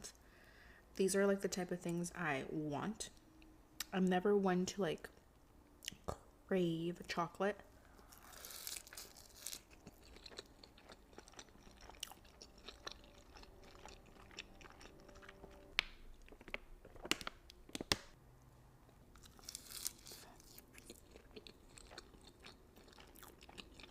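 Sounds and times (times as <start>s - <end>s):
chewing and crunching: 8.0s - 17.2s, 18.9s - 23.9s.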